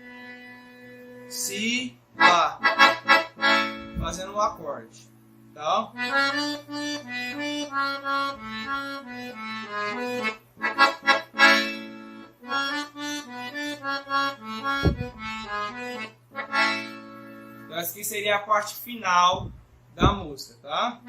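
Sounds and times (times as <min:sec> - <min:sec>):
accordion melody: 0:00.0 - 0:04.8, 0:05.6 - 0:18.0
low thump: 0:03.8 - 0:04.2, 0:14.6 - 0:15.6, 0:19.3 - 0:20.3.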